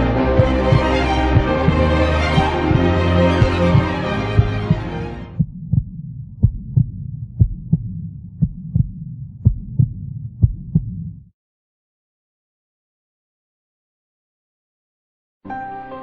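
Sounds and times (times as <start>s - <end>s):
soundtrack music: 0.0s - 5.4s, 15.5s - 16.0s
heartbeat thumps: 0.0s - 11.3s.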